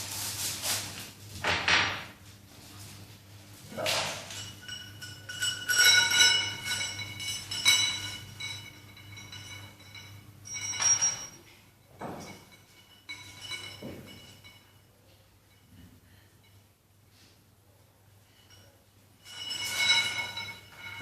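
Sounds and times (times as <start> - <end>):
metal gym weights clanking: 3.8 - 14.8, 18.6 - 21.0.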